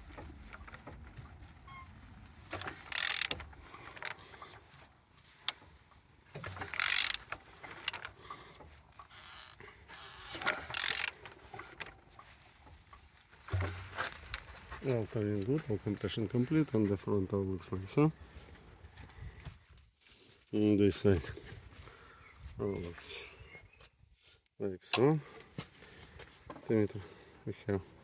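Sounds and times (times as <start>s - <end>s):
engine cranking rasps: 2.4s - 4.8s, 6.2s - 11.9s
ratchet clicks: 2.5s - 4.2s, 6.4s - 8.2s, 8.9s - 11.2s.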